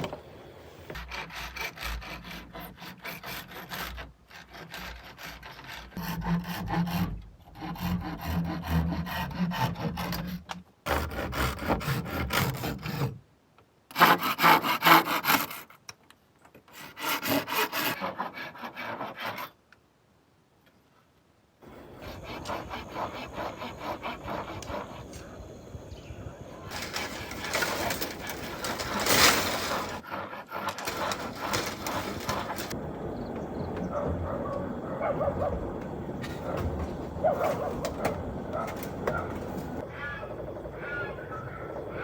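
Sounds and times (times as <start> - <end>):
hand tools rasping wood: 0.9 - 13.2, 13.9 - 15.7, 16.7 - 19.5, 21.6 - 25.7, 26.6 - 32.8, 35.8 - 39.8.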